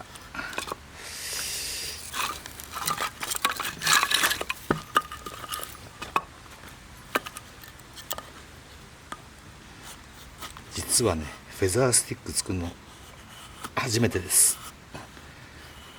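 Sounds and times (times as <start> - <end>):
knife scraping wood: 1.8 - 6.3.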